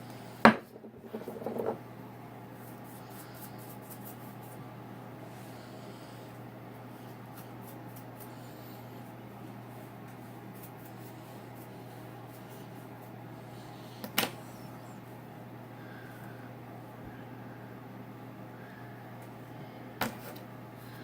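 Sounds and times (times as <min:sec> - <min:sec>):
steady low hum: 0:00.0 - 0:21.0
comb rustling hair: 0:02.5 - 0:04.8, 0:06.8 - 0:14.7.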